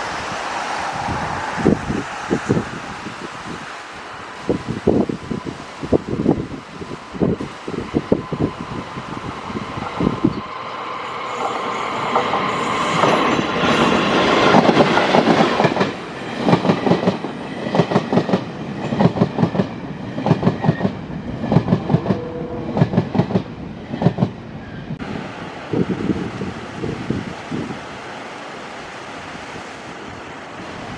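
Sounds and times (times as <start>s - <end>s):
train rushing past: 0.0s - 29.0s
clickety-clack of train wheels: 11.3s - 24.4s.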